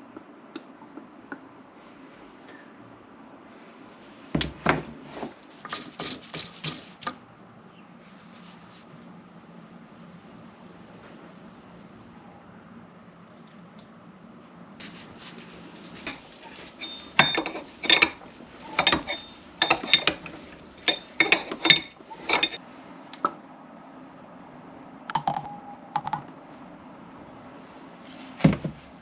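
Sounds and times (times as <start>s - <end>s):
hard parts clicking and knocking: 16.0s - 22.6s.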